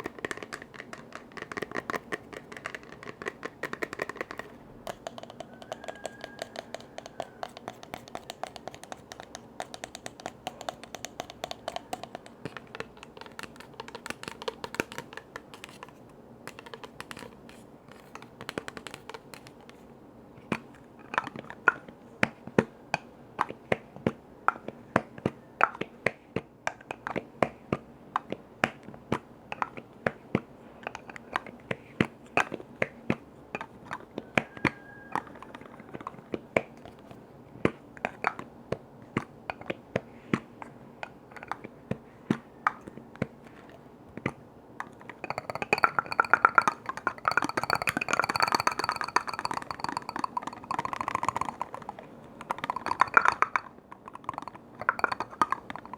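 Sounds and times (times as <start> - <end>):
tapping on hard objects: 0.0 - 19.8, 41.0 - 55.9.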